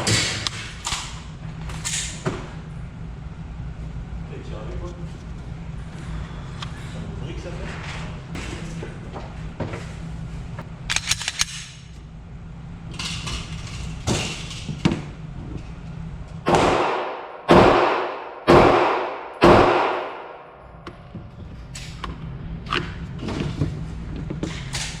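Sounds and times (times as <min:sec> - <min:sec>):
pistol shots echoing: 0:16.5 - 0:20.6.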